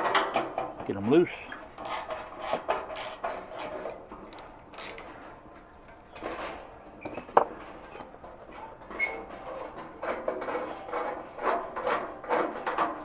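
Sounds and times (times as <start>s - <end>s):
wrench clicking and scraping on metal: 1.8s - 5.1s.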